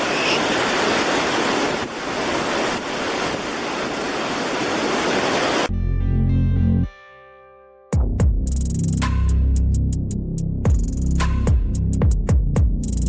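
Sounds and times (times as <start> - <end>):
music with heavy bass: 5.7 - 7.1, 7.9 - 13.0.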